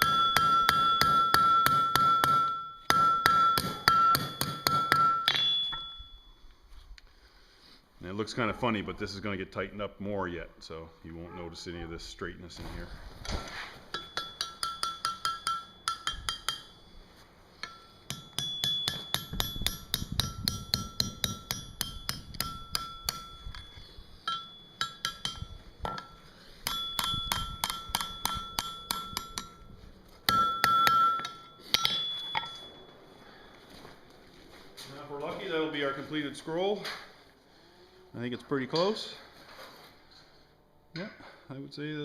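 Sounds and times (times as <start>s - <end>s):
hammer ringing on steel bar: 0.0s - 6.4s, 13.9s - 17.0s, 17.6s - 29.7s, 30.3s - 33.0s.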